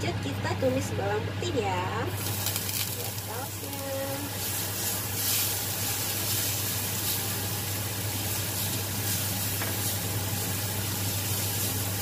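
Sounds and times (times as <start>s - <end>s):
constant low hum: 0.0s - 12.0s
garlic sizzling in hot oil: 2.1s - 12.0s
spatula stirring in pan: 3.8s - 12.0s.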